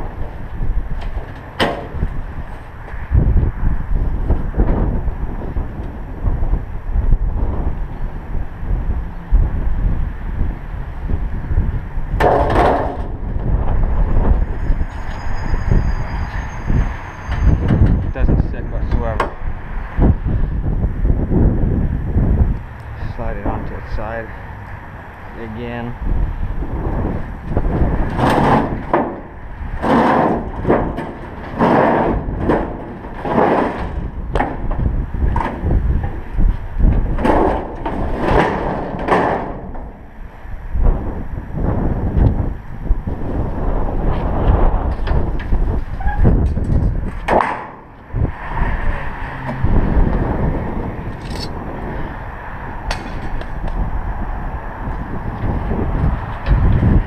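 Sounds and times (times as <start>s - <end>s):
wind buffeting microphone: 0.0s - 57.0s
sharp metal knocks: 1.1s - 2.0s, 12.2s - 13.2s, 28.1s - 36.2s, 37.2s - 40.0s, 47.2s - 48.0s, 52.9s - 53.5s.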